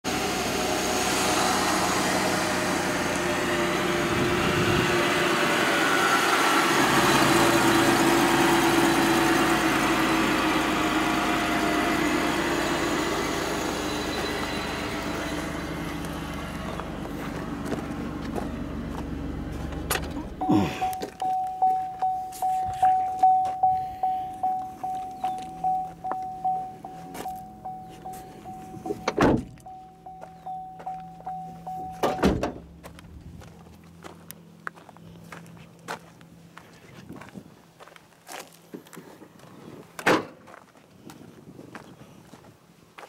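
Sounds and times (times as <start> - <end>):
car engine idling: 6.2 - 36.7.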